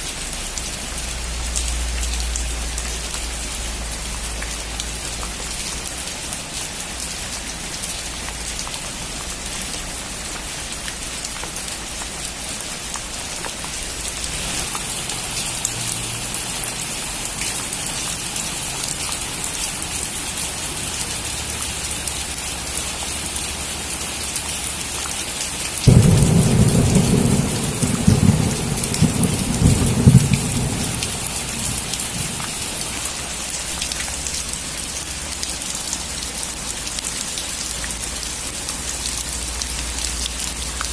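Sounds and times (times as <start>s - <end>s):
steady rain falling: 0.0s - 40.9s
thunderclap rumbling: 25.9s - 33.0s.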